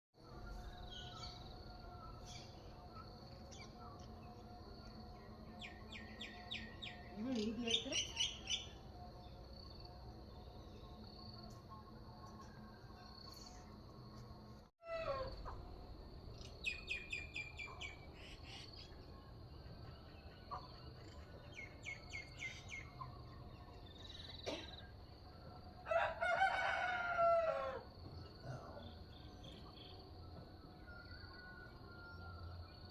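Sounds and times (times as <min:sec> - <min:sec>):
rooster crowing: 0:25.8 - 0:28.0.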